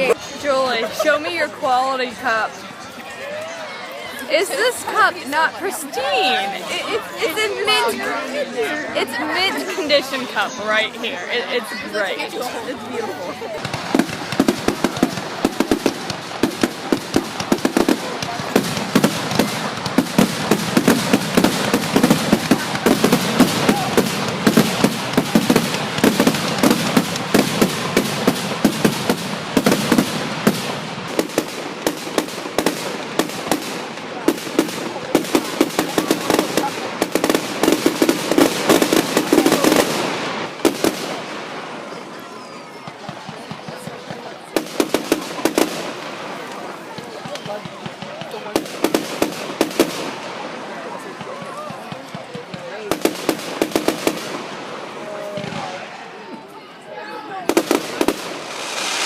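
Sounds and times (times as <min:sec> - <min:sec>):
fireworks crackling and popping: 0:13.6 - 0:42.0, 0:42.8 - 0:56.0, 0:57.4 - 0:59.0.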